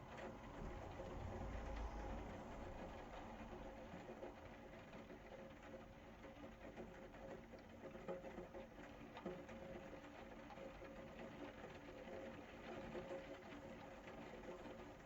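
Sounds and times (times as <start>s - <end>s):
faint rain pattering: 0.0s - 15.0s.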